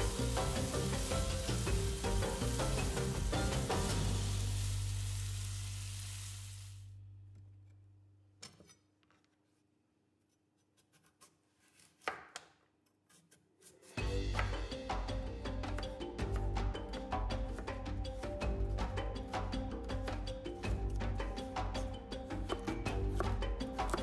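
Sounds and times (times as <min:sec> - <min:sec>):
background music: 0:00.0 - 0:06.2, 0:14.0 - 0:24.0
food sizzling in a frying pan: 0:00.0 - 0:06.9.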